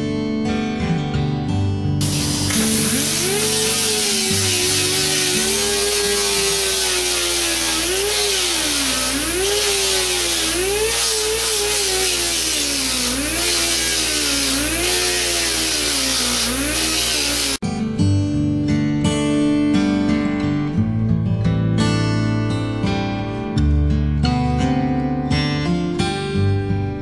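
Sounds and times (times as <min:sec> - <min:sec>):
pneumatic grinder whining: 0:02.0 - 0:17.6.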